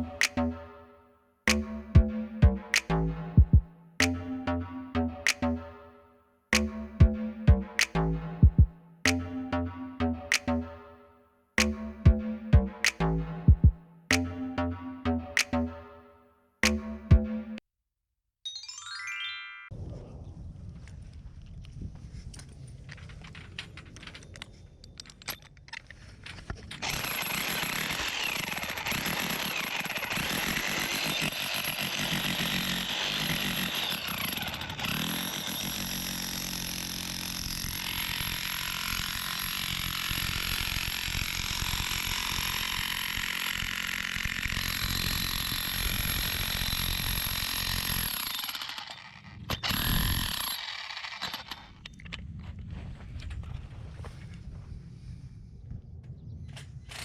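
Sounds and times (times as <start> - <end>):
hammer drill driving steel pipe: 26.8 - 51.6.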